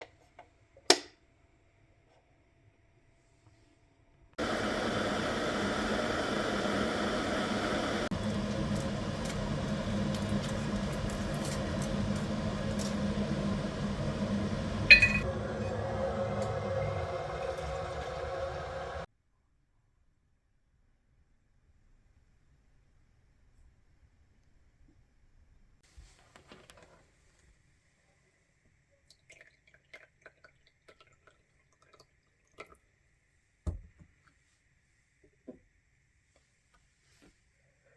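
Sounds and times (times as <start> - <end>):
low hum: 4.4 - 19.1
teaware clinking: 14.9 - 15.2
faint water drips: 29.0 - 33.0.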